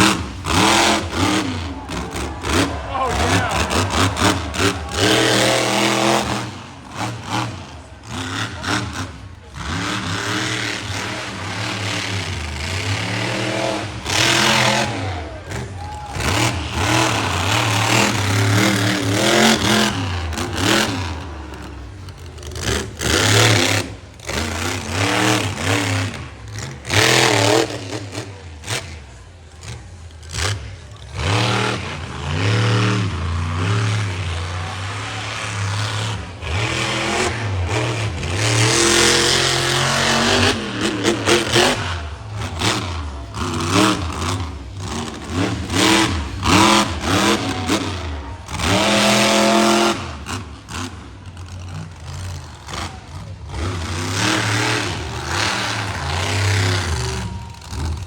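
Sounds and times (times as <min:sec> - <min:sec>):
monster truck engine revving: 0:00.0 - 0:58.0.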